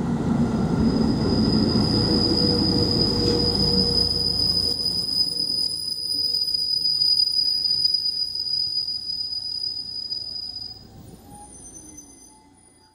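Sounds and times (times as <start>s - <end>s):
train rolling rumble: 0.0s - 11.9s
train brakes squealing: 0.7s - 12.9s.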